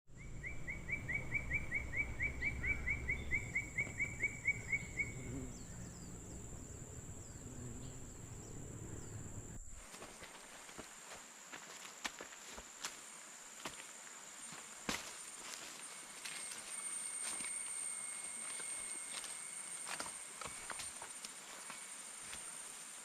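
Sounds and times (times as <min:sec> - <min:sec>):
bird chirping: 0:00.1 - 0:09.8
high-pitched insect drone: 0:00.2 - 0:23.0.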